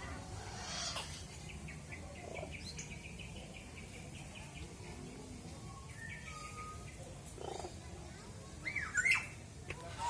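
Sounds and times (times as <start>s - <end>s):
birds chirping: 0.2s - 8.0s.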